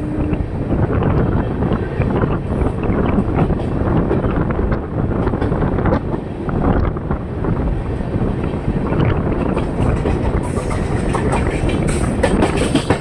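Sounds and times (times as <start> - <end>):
moving train rumble: 0.0 - 13.0
wind buffeting microphone: 0.0 - 13.0.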